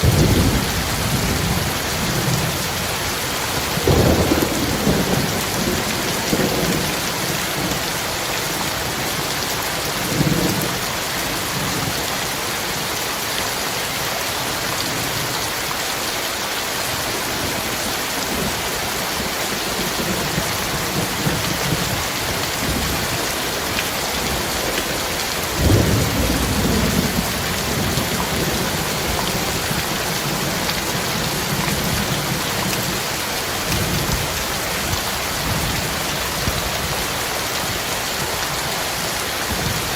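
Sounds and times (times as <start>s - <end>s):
thunder rumbling: 0.0s - 7.9s, 25.5s - 36.7s
heavy rain pouring: 0.0s - 39.9s.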